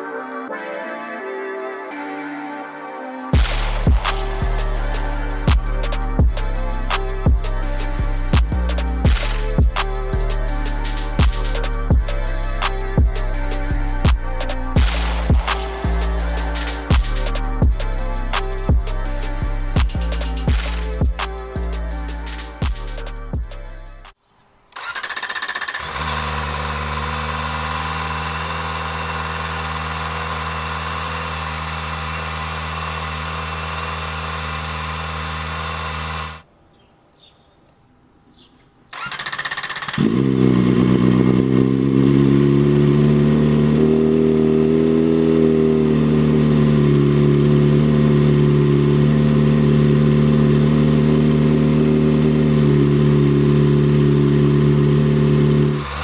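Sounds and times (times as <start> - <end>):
motorcycle engine idling: 3.4 - 23.5, 24.8 - 36.4, 39.0 - 56.0.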